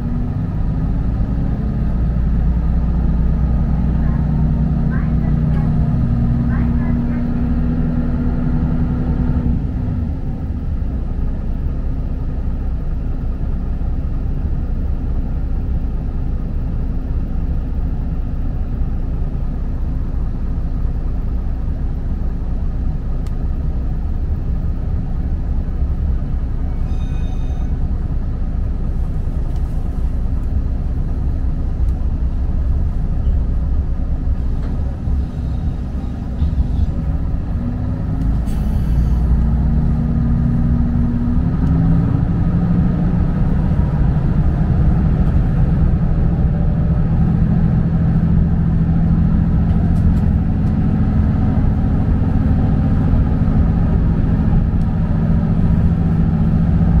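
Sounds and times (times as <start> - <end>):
railcar engine and wheel rumble: 0.0 - 57.0
short high ringing: 26.7 - 27.8.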